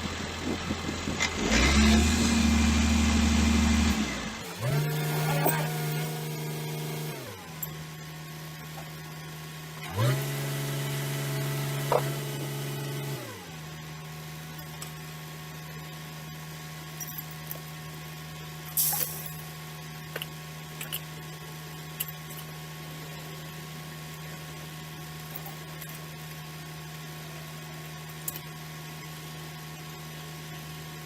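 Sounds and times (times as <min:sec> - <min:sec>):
truck engine revving and idling: 0:00.0 - 0:07.7, 0:09.4 - 0:13.8.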